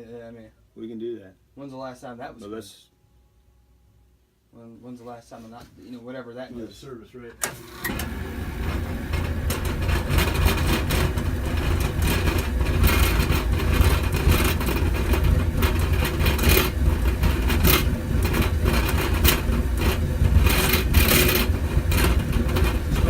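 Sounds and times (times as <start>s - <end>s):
oil furnace burner rumbling: 7.4s - 23.0s.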